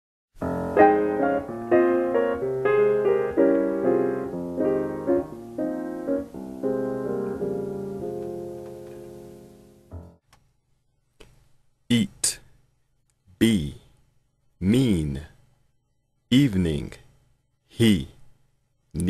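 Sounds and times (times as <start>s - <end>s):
piano tune: 0.4s - 10.2s.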